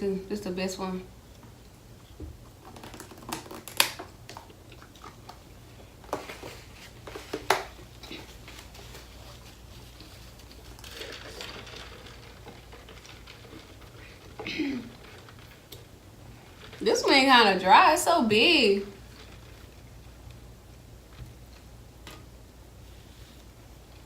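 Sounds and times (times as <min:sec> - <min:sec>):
eating sounds with wet smacks: 0:02.7 - 0:05.4.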